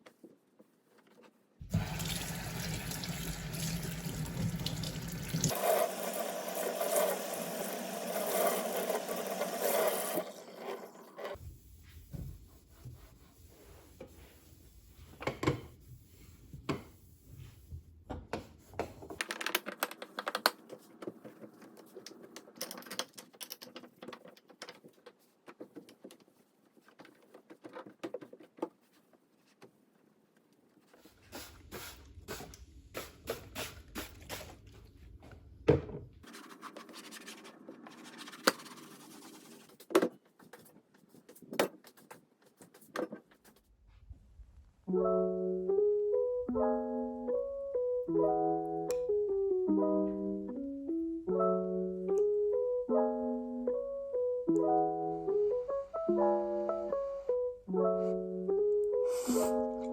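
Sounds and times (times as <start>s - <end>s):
water running: 1.6s - 11.4s
clicks and knocks of objects: 19.0s - 28.8s.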